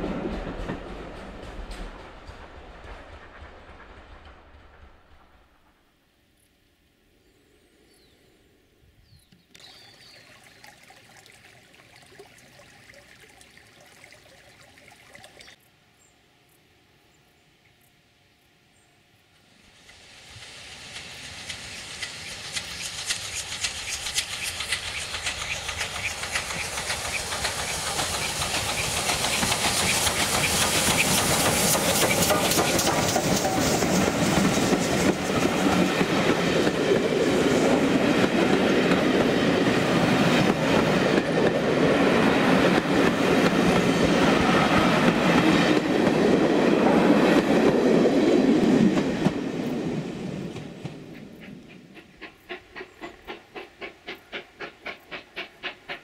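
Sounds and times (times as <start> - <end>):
train wheels clicking over rail joints: 0.0 - 5.8, 19.7 - 56.0
train rumble: 0.0 - 6.5, 19.3 - 56.0.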